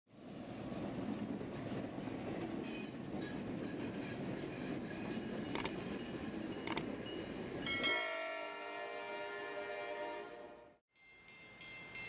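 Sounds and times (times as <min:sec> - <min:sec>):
diesel freight train rumbling: 0:00.1 - 0:10.6
sharp clicks: 0:06.7 - 0:06.9.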